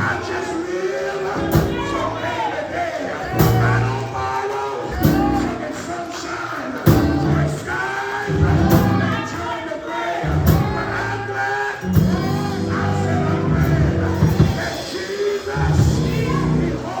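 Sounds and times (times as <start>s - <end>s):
organ chords: 0.0s - 0.4s, 6.9s - 9.4s, 10.2s - 17.0s
voices singing: 0.0s - 17.0s.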